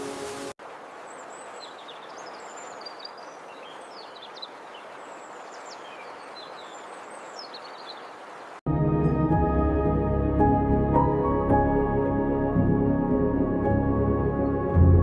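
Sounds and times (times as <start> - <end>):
small birds chirping: 1.0 - 8.6.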